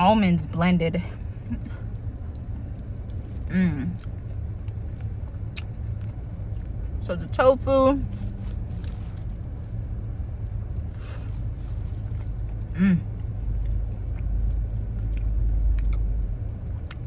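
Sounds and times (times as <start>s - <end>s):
low car rumble: 0.0s - 17.0s
person chewing food: 1.8s - 7.0s, 10.4s - 17.0s
person humming mm: 3.5s - 4.0s, 12.7s - 13.1s.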